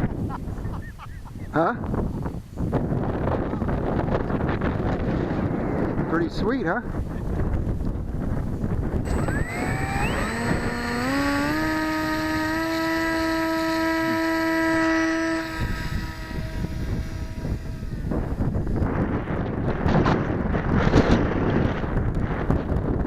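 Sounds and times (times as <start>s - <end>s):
wind buffeting microphone: 0.0s - 23.0s
model airplane motor whining: 9.0s - 20.2s.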